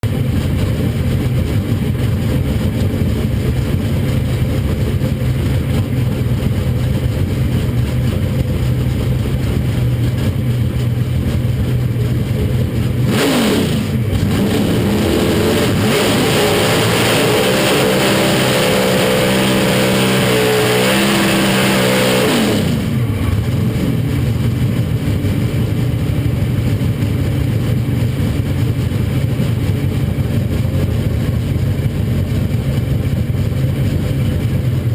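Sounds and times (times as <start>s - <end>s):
truck engine idling and revving: 0.0s - 34.9s.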